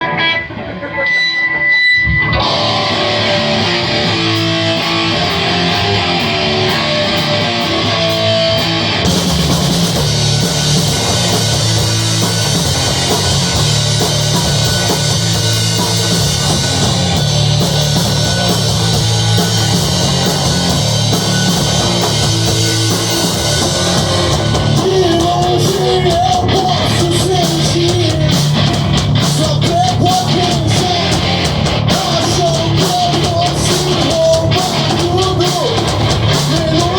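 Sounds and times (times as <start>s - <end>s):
electric guitar: 0.0s - 36.9s
rock band playing: 0.0s - 36.9s
person singing: 24.6s - 28.6s, 29.2s - 36.9s.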